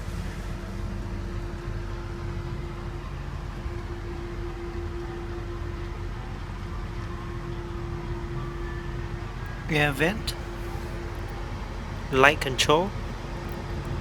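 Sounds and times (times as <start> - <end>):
constant mid-pitched tone: 8.6 - 11.2.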